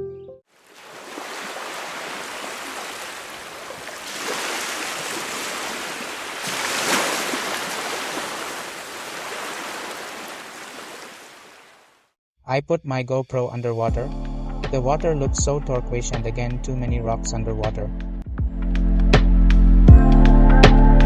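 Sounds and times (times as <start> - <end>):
waves washing against rocks: 0.7 - 11.6.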